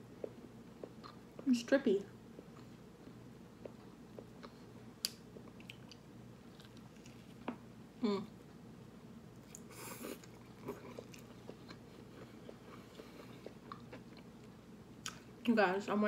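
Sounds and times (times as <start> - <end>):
close-miked chewing: 0.2 - 1.6, 2.3 - 7.5, 9.4 - 15.2
person humming: 8.0 - 8.4.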